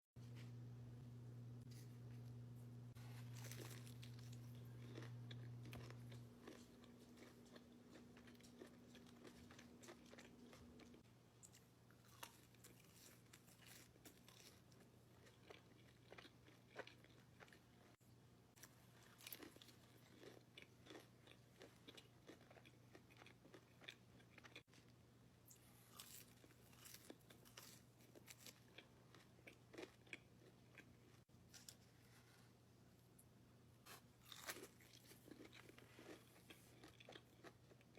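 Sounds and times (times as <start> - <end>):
steady low hum: 0.2 - 12.6
crunchy chewing of fried chicken: 3.0 - 32.3, 33.8 - 37.9.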